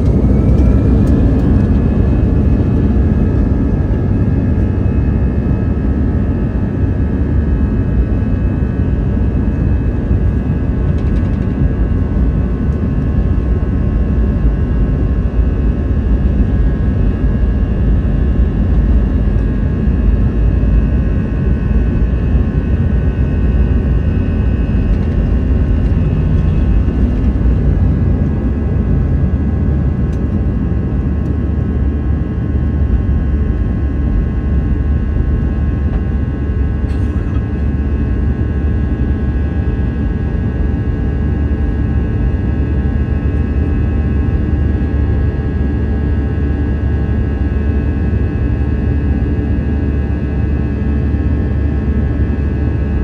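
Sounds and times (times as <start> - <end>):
steady whining tones: 0.0 - 6.3, 9.2 - 31.3
jet engines deep rumble: 0.0 - 53.0.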